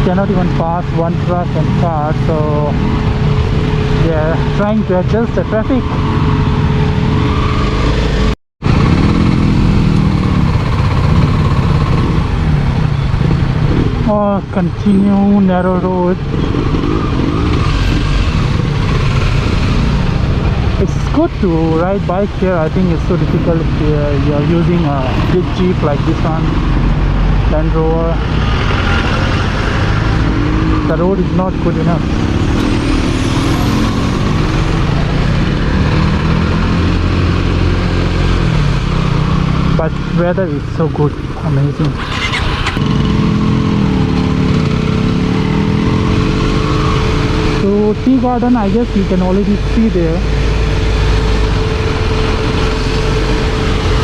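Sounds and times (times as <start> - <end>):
motorcycle engine running: 0.0 - 54.0
steady rushing noise: 15.9 - 54.0.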